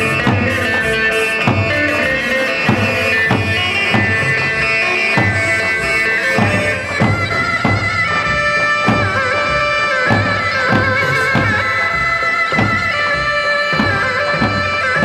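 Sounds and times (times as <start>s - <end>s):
reedy wind instrument melody: 0.0s - 15.0s
regular drum beat: 0.0s - 15.0s.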